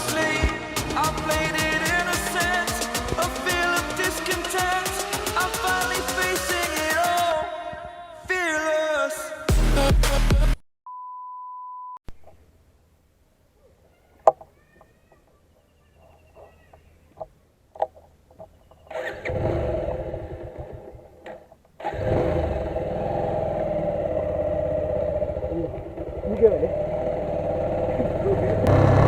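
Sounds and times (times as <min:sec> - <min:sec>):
motorcycle engine running: 0:21.9 - 0:29.0.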